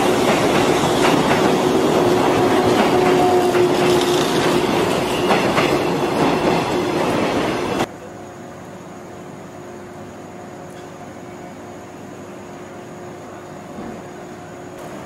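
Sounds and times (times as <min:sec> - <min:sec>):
electric train wheels clicking: 0:00.0 - 0:07.9
train whine: 0:00.0 - 0:15.0.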